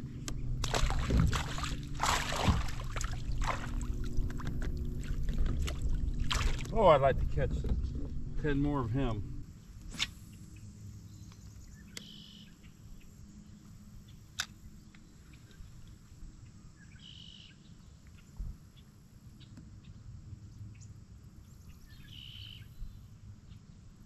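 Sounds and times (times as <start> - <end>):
wind and water rumble: 0.0 - 24.0
bird short call: 22.0 - 22.7.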